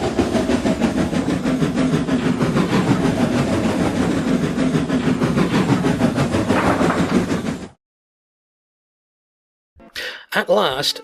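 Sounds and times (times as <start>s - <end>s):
train chuffing and rattling: 0.0s - 7.8s.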